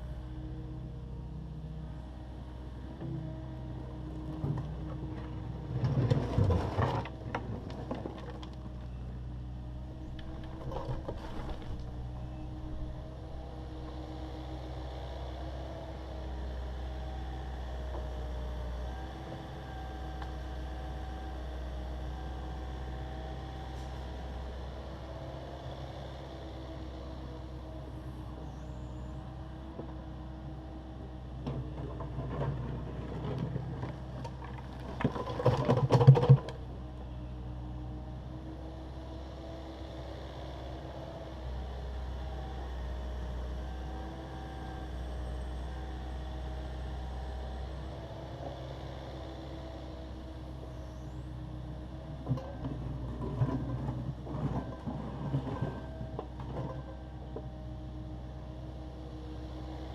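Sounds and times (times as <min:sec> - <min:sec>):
excavator diesel engine running: 0:00.0 - 0:59.9
concrete crunching and scraping: 0:10.0 - 0:12.9.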